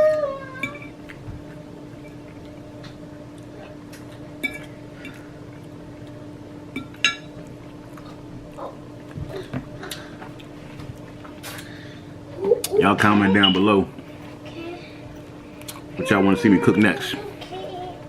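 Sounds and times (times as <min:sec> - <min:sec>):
steady low hum: 0:00.0 - 0:18.0
utensils clinking against dishes: 0:04.0 - 0:05.2, 0:06.8 - 0:07.4, 0:13.0 - 0:13.8.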